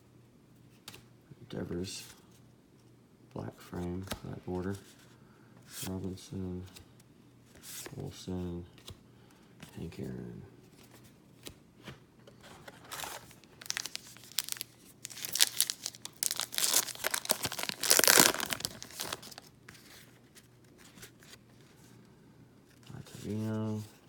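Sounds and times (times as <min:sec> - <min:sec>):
foil wrapper tearing and crinkling: 0:13.0 - 0:19.5.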